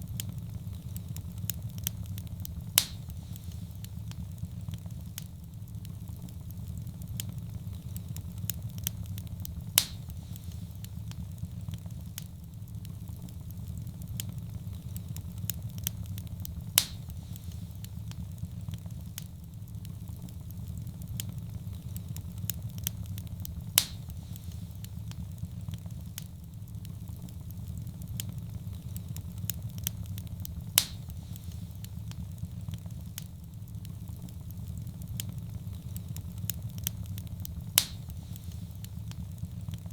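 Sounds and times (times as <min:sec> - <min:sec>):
loud fire pops: 0:00.0 - 0:39.9
wood fire crackling: 0:00.0 - 0:39.9.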